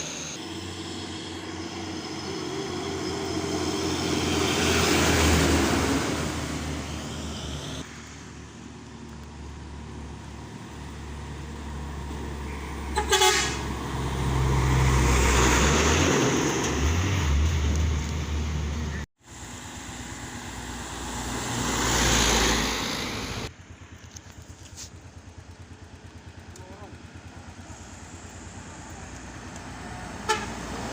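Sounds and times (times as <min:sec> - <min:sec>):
trucks driving past: 0:00.0 - 0:30.9
short horn toot: 0:12.9 - 0:13.7, 0:30.2 - 0:30.6.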